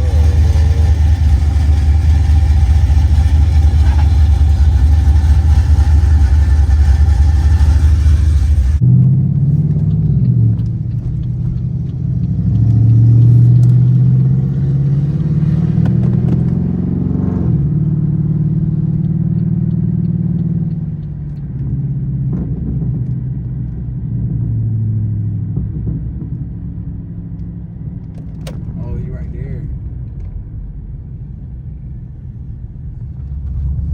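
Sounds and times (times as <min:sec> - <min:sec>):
car engine exhaust revving: 0:00.0 - 0:27.1.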